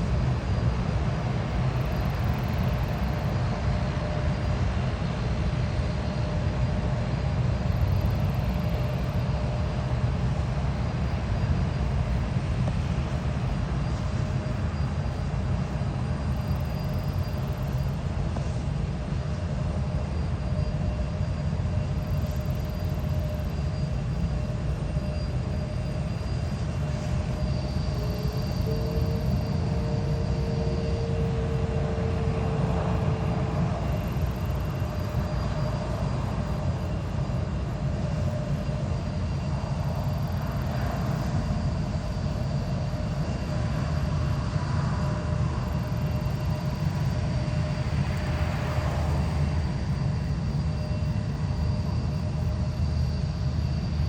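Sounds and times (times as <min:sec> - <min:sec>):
faint jet engine whine: 0:00.0 - 0:54.0
jet engines rumbling: 0:00.0 - 0:54.0.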